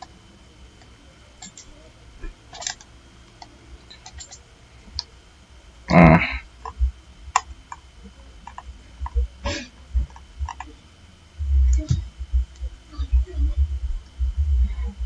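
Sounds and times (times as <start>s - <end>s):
computer mouse clicks: 0.8s - 5.1s, 6.6s - 9.2s, 10.0s - 10.8s.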